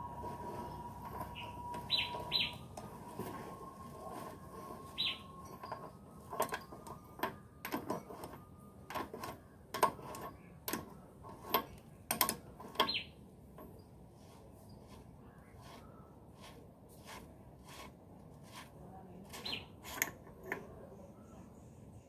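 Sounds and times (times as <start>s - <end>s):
bird chirp: 1.3s - 2.7s, 4.9s - 5.4s, 12.8s - 13.2s, 19.4s - 19.8s
hand tools clinking on metal: 5.1s - 13.0s.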